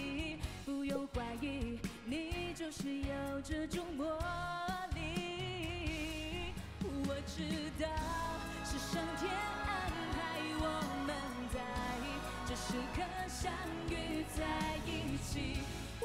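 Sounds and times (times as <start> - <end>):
person singing: 0.0 - 16.0
band playing with steady beat: 8.0 - 16.0.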